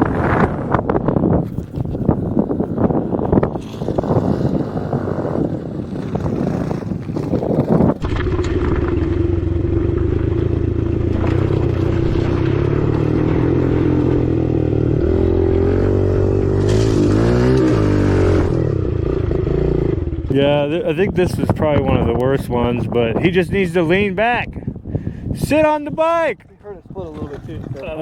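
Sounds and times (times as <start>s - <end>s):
dirt bike engine revving: 1.7s - 21.2s.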